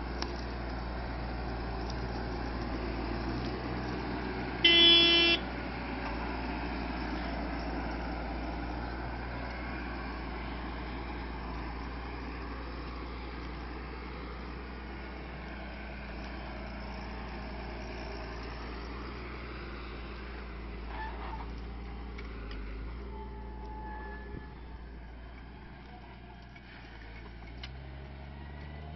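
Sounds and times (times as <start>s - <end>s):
tractor engine droning: 0.0s - 28.9s
horn blast: 4.6s - 5.4s.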